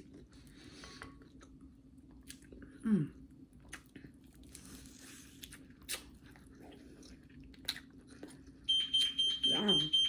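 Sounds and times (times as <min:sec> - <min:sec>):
biting and chewing chicken: 0:03.6 - 0:09.3.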